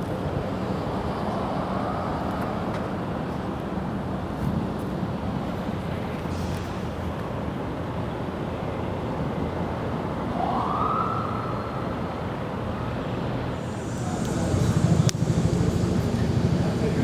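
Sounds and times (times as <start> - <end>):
distant siren wailing: 10.3 - 12.0, 13.5 - 17.0
steady rushing noise: 13.5 - 17.0.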